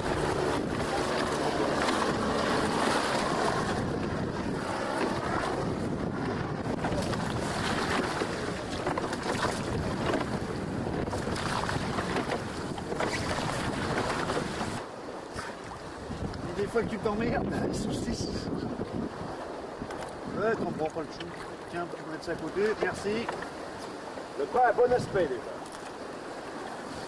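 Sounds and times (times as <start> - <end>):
water washing and splashing: 0.0 - 16.2
wind buffeting microphone: 0.0 - 27.0.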